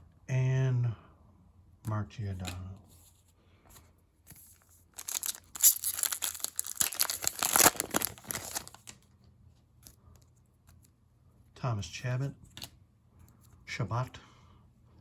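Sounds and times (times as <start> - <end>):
foil wrapper crinkling and tearing: 4.9 - 9.0.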